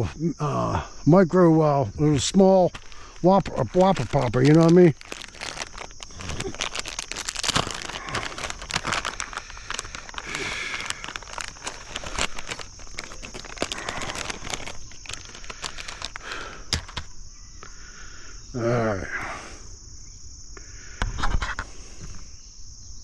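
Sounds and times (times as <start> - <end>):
insects chirping: 0.0 - 23.0
rustling near microphone: 2.3 - 17.1.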